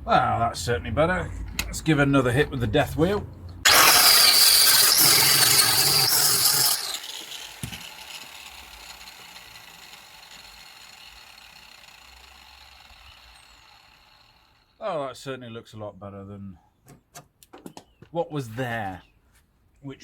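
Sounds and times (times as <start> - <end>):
grinder whine spinning down: 3.6 - 14.7
angle grinder grinding steel: 3.6 - 14.8.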